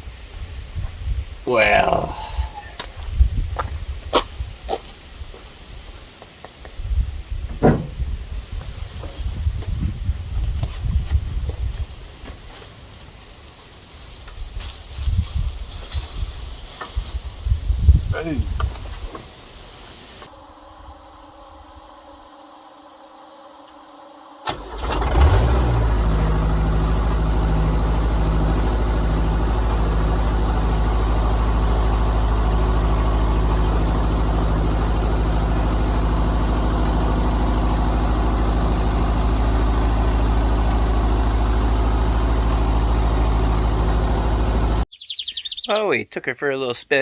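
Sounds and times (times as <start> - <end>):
engine cranking and starting: 24.4 - 44.9.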